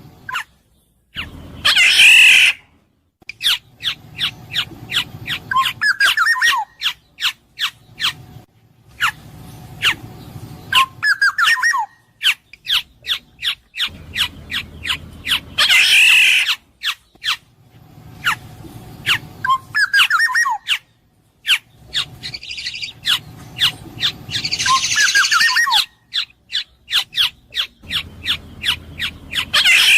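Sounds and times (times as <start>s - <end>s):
bird nasal screech: 1.6s - 2.6s, 15.3s - 16.6s
bird fluty whistles: 24.0s - 26.7s.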